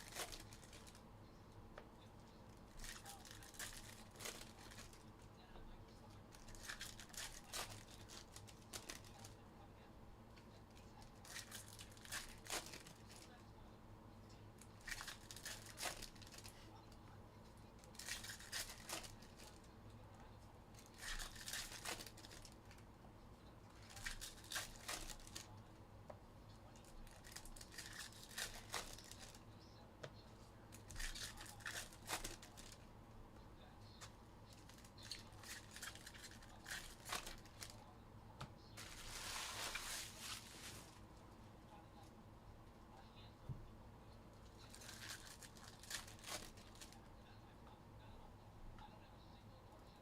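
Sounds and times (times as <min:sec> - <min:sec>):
foil wrappers tearing and crinkling: 0:00.0 - 0:01.0, 0:02.8 - 0:05.0, 0:06.4 - 0:09.3, 0:11.2 - 0:13.2, 0:14.8 - 0:16.5, 0:17.9 - 0:19.5, 0:20.8 - 0:22.6, 0:23.8 - 0:25.5, 0:27.0 - 0:29.4, 0:30.8 - 0:32.8, 0:34.7 - 0:37.8, 0:38.8 - 0:41.0, 0:44.7 - 0:47.0.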